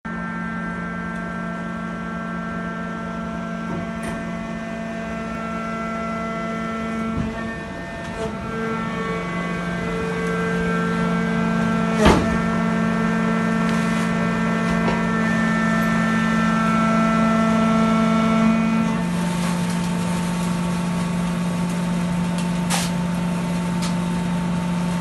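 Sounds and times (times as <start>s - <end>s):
packing press humming: 0.1s - 25.0s.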